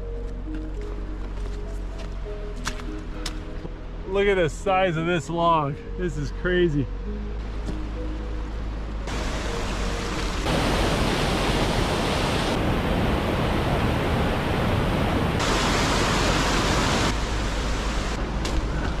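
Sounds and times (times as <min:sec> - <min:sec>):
rushing water: 0:09.0 - 0:19.0.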